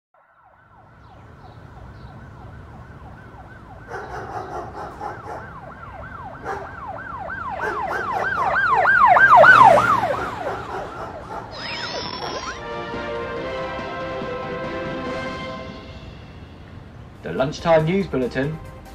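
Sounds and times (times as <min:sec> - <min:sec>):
emergency siren yelping: 0:00.4 - 0:12.8.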